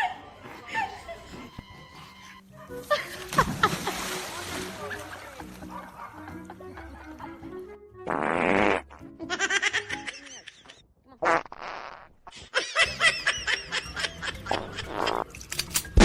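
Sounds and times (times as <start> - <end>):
people laughing: 0.0 - 1.5, 2.6 - 7.5, 9.2 - 10.8, 12.5 - 15.2.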